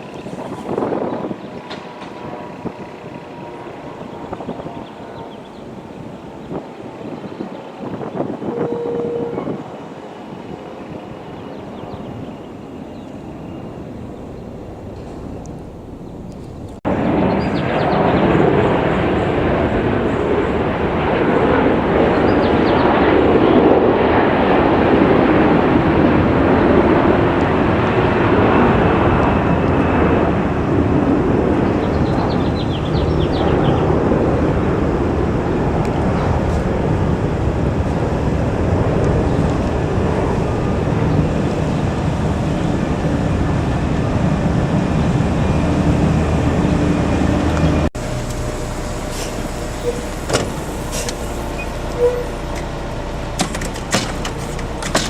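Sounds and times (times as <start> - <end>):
heavy vehicle engine running: 13.3 - 16.9, 39.2 - 55.0.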